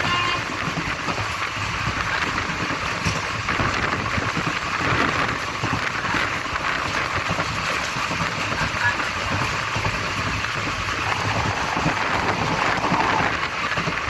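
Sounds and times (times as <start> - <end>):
passenger train rushing: 0.0 - 4.6, 8.7 - 14.0.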